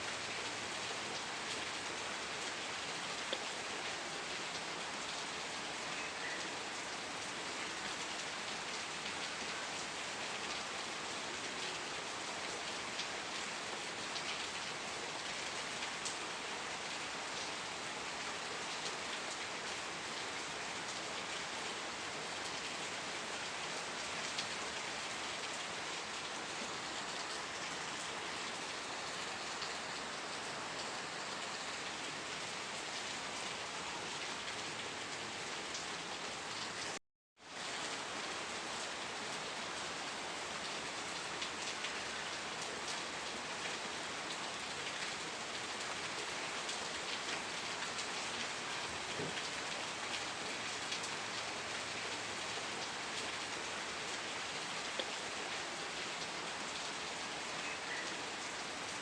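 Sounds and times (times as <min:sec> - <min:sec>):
dense rain falling: 0:00.0 - 0:59.0.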